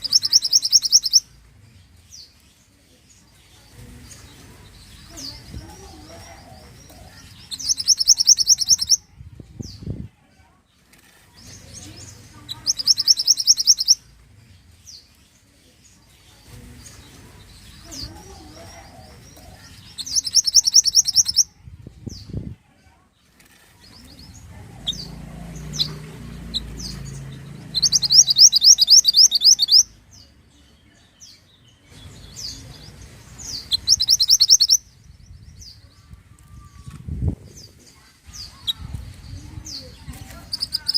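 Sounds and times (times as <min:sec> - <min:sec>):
bird trilling: 0:00.0 - 0:01.2, 0:07.4 - 0:09.0, 0:12.5 - 0:14.0, 0:19.9 - 0:21.5, 0:24.8 - 0:30.0, 0:33.4 - 0:34.9, 0:40.4 - 0:40.9
bird chirps: 0:00.0 - 0:02.6, 0:03.4 - 0:09.0, 0:11.4 - 0:14.1, 0:16.1 - 0:21.5, 0:23.8 - 0:35.8, 0:38.3 - 0:40.9.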